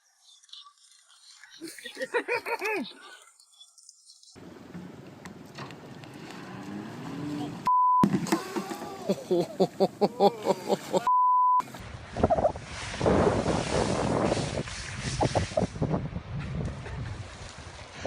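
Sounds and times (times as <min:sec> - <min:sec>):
censor bleeps: 0:07.7 - 0:08.1, 0:11.1 - 0:11.6
excited voices: 0:08.4 - 0:11.1
wind-like rushing noise: 0:11.7 - 0:18.0.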